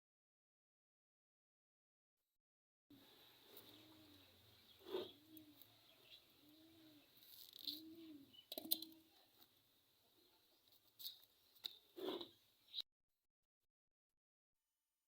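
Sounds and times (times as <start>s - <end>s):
dove cooing: 3.0s - 9.3s.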